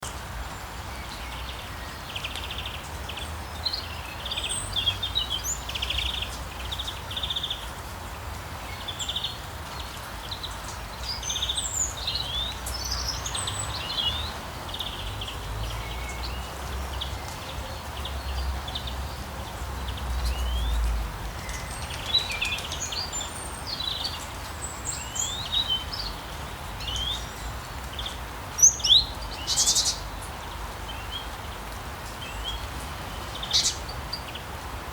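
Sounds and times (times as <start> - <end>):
songbirds chirping and trilling: 0.0 - 34.9.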